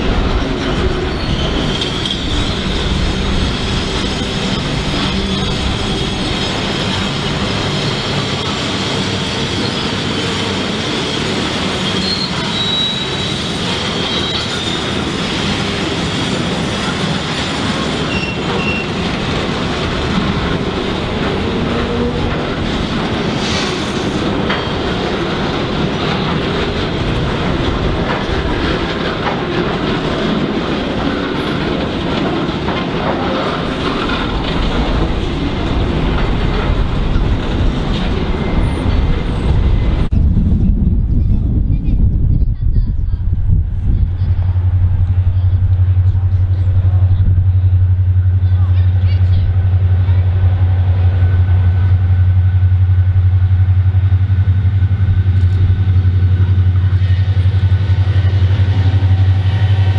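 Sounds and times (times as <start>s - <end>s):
train wheels clacking over rail joints: 0.0s - 40.1s
steady train rumble: 0.0s - 59.9s
high wheel squeal: 0.6s - 15.7s, 16.8s - 19.2s.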